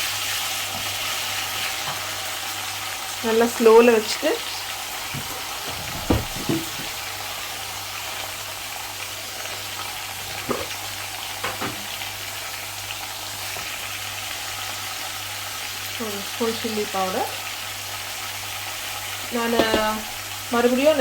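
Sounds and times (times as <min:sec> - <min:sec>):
onions sizzling in oil: 0:00.0 - 0:21.0
spoon knocking against pan: 0:19.5 - 0:20.1.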